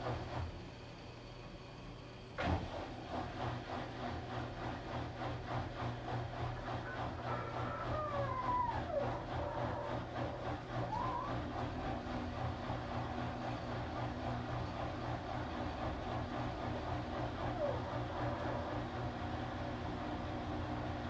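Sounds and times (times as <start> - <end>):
washing machine churning: 2.5 - 7.7, 8.5 - 17.7.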